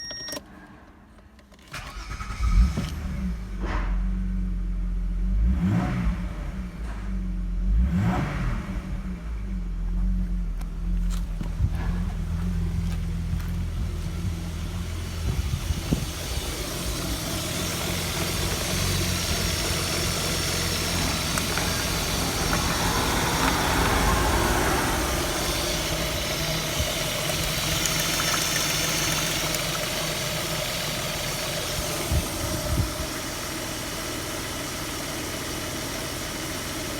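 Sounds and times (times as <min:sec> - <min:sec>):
car engine idling: 0:09.6 - 0:36.9.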